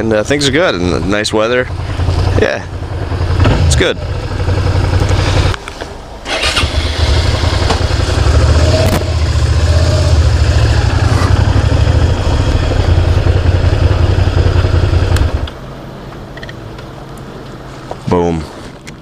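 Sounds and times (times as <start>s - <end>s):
motorcycle engine idling: 0.4s - 15.6s.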